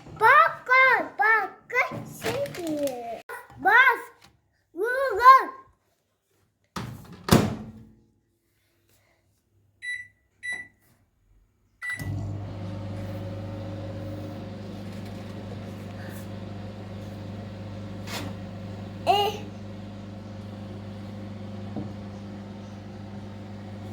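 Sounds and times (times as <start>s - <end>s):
microwave keypad beeps: 9.8s - 10.8s
microwave humming: 12.0s - 23.9s.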